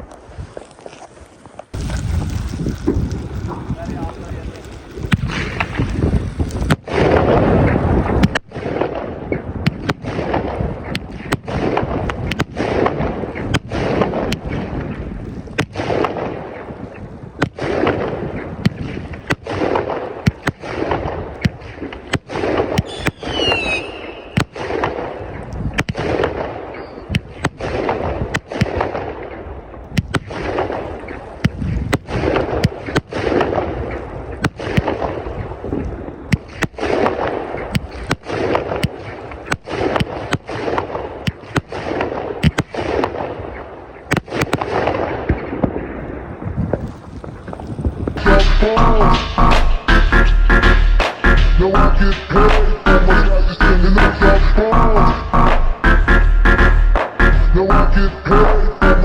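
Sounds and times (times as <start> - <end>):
rushing firework noise: 0.0 - 51.6
firework bangs: 1.7 - 48.2
falling firework whistles: 22.8 - 24.6.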